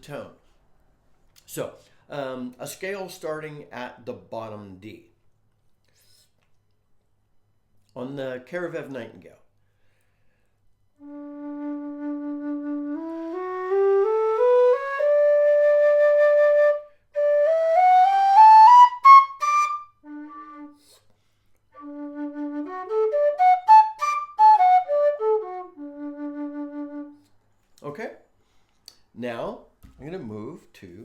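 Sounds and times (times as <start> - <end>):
low whistle playing a scale: 11.0 - 20.8, 21.8 - 27.2.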